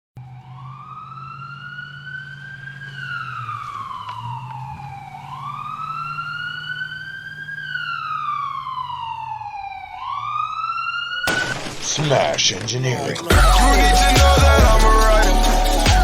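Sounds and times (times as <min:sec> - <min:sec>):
wailing siren: 0:00.2 - 0:11.3.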